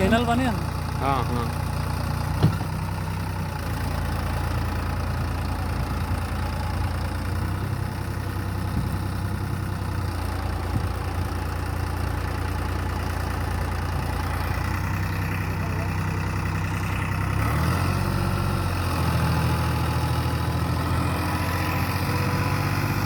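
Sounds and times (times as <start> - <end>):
tractor diesel engine idling: 0.0 - 23.0
short knock: 2.4 - 2.8.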